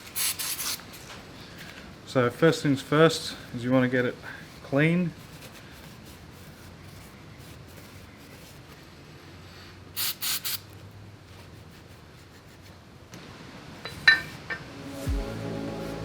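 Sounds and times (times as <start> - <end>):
hissing spray bursts: 0.0 - 0.9, 10.0 - 10.7
background music: 14.5 - 16.0.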